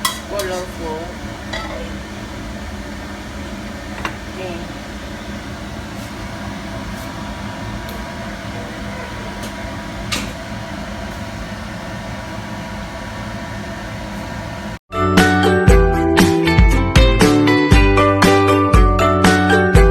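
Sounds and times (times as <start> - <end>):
fan-like hum: 0.0 - 14.8.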